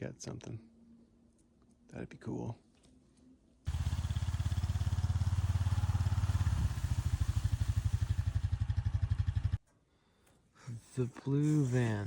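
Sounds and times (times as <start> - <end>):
engine idling: 3.7 - 9.6.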